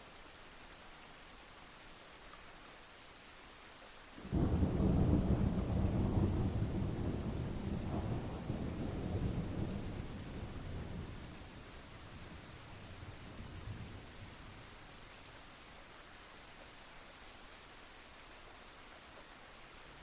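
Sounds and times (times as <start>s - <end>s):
steady rain: 0.0s - 20.0s
thunderclap with low rumble: 4.3s - 14.4s.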